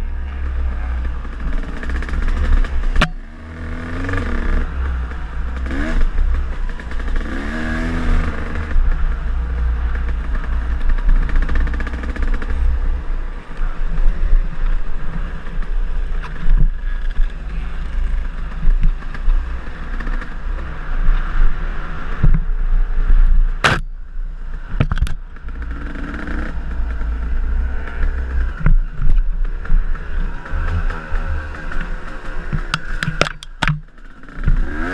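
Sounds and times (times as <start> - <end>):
dirt bike engine revving: 0.0 - 23.8, 25.3 - 34.9.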